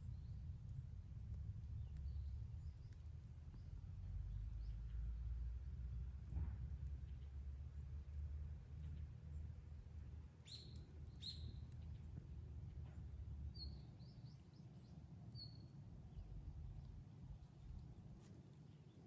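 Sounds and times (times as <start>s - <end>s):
low steady rumble: 0.0s - 19.0s
bird chirps: 10.4s - 11.9s, 13.5s - 15.7s.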